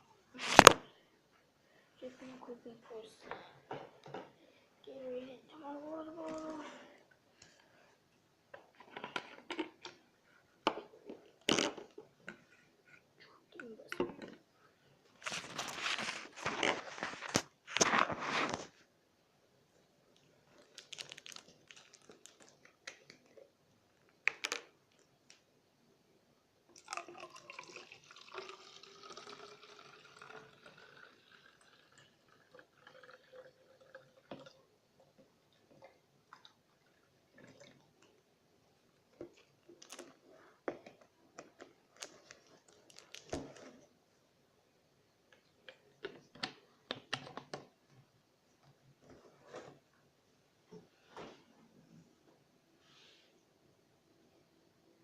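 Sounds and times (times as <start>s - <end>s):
liquid pouring into bottle: 26.7s - 34.7s.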